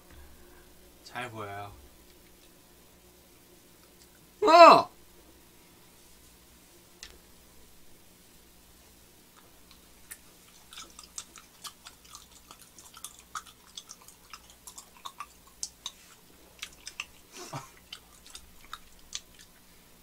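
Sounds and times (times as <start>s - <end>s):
wet mouth clicks chewing: 9.3s - 19.6s.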